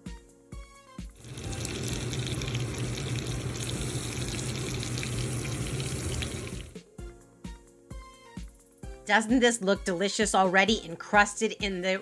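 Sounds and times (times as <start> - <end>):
chicken sizzling in oil: 1.2 - 6.8.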